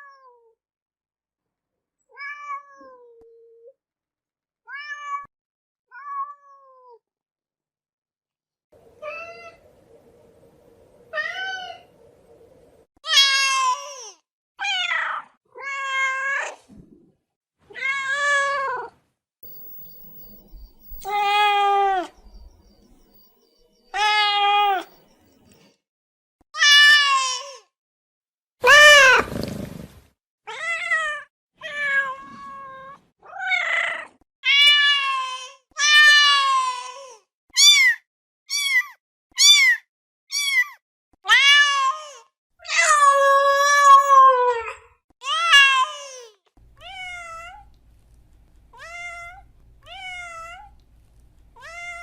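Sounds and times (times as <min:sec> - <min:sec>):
cat meowing: 0:20.9 - 0:22.2, 0:23.9 - 0:24.9, 0:46.8 - 0:47.8, 0:48.7 - 0:50.8, 0:51.6 - 0:52.0.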